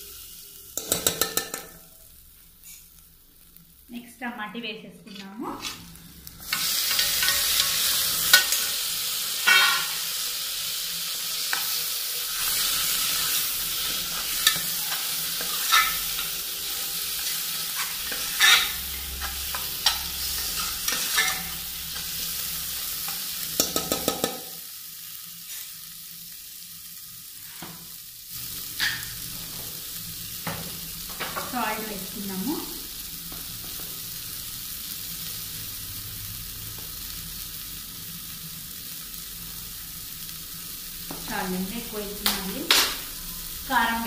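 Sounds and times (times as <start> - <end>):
masala sizzling in pot: 0.0 - 44.0
steel spoon clinking on pot: 0.8 - 1.8.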